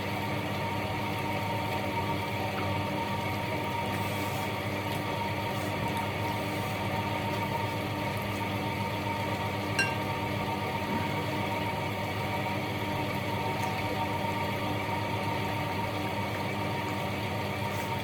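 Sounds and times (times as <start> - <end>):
steady machine hum: 0.0 - 18.0
tableware clink: 9.8 - 10.1.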